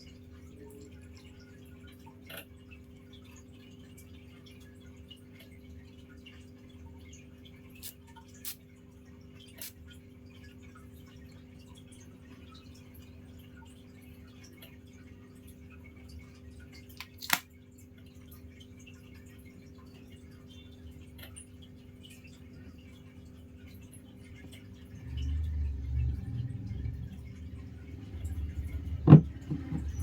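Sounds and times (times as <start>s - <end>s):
steady low hum: 20.0s - 30.0s.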